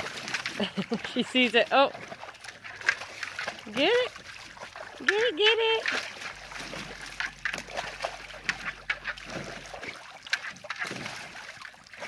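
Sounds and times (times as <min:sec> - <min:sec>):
dog splashing in water: 0:00.0 - 0:12.0
low hum: 0:05.9 - 0:11.4.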